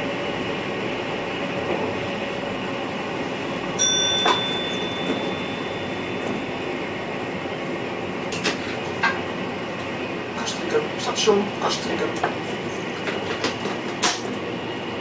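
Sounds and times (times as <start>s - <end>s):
electric train running rumble: 0.0s - 15.0s
high ringing tone: 3.8s - 7.2s.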